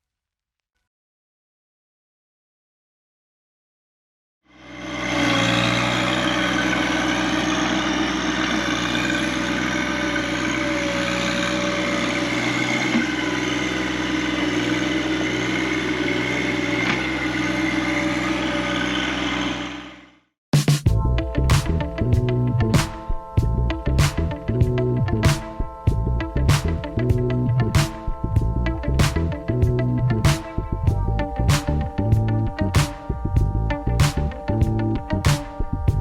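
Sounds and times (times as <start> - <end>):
engine running steadily: 4.6 - 20.0, 23.4 - 36.0.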